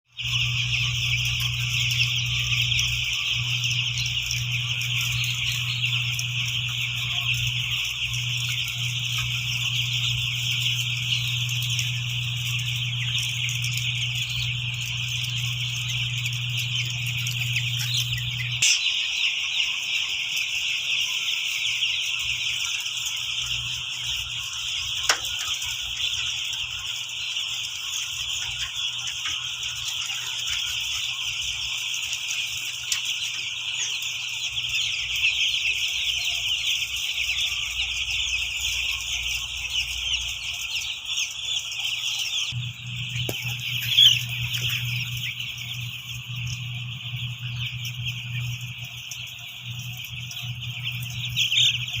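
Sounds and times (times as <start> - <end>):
chicks peeping: 0.0 - 52.0
low hum: 0.1 - 18.8, 42.5 - 52.0.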